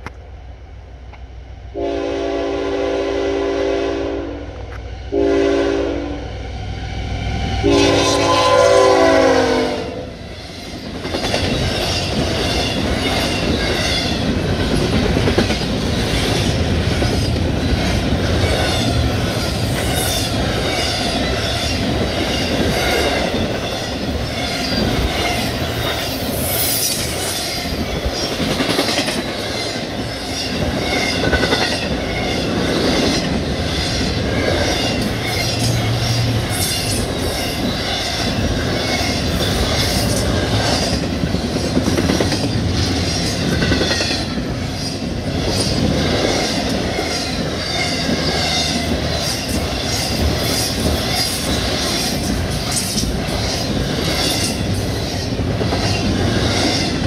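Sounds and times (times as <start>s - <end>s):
train wheels rumbling on rails: 0.0s - 57.0s
locomotive air horn blasts: 1.7s - 6.3s, 7.6s - 10.1s
clickety-clack of train wheels: 9.6s - 57.0s.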